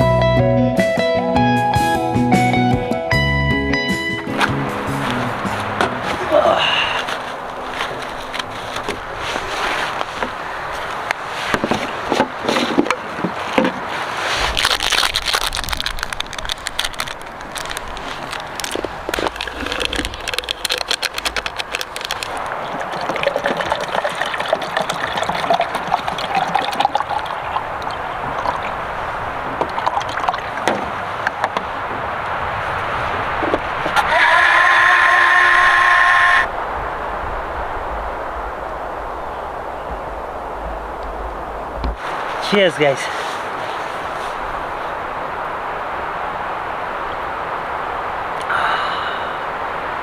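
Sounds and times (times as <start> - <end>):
water sloshing and gurgling: 4.3 - 34.0
small clicks and knocks: 14.6 - 22.5.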